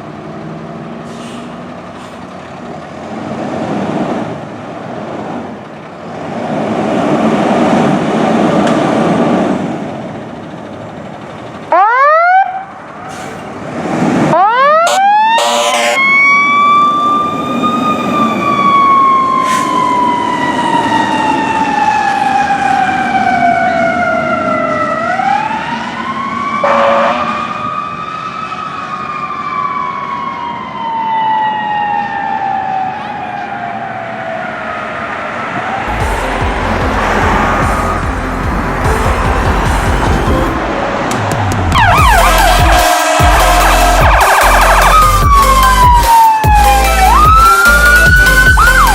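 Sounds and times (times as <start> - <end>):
fire engine siren: 11.5 - 13.6, 14.2 - 48.9
short horn blasts: 14.8 - 16.1, 41.8 - 44.9
vehicle rumble: 35.6 - 48.9.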